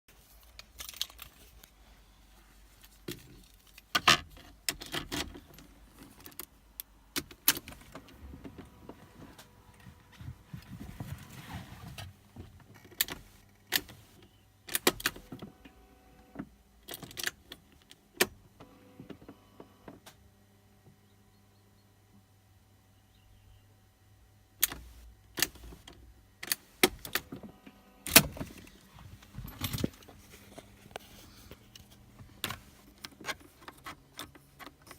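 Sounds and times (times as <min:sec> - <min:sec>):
keys jangling: 0:29.2 - 0:30.8.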